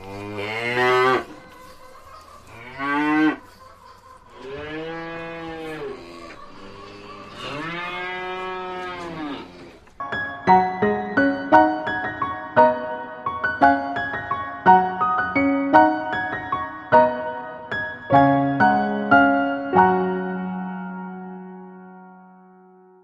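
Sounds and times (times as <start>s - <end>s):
cow mooing: 0.0s - 1.6s, 2.4s - 3.5s, 4.4s - 9.9s
piano music: 9.9s - 23.0s.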